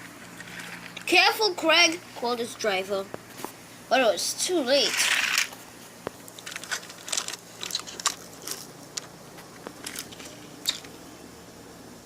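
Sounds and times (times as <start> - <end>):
faint steady hum: 0.0 - 12.0
light clicks and crackles: 5.4 - 11.0.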